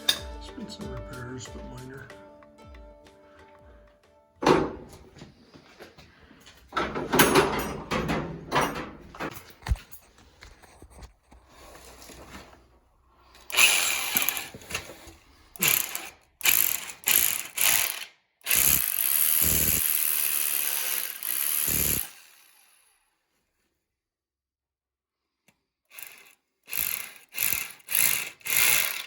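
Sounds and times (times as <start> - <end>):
power drill running: 13.4 - 23.0, 25.9 - 29.0.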